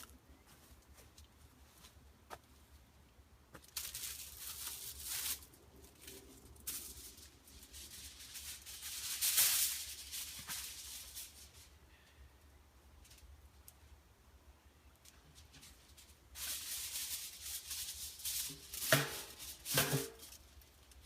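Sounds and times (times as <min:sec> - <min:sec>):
rustling and handling noises: 0:03.5 - 0:11.8, 0:14.8 - 0:21.0.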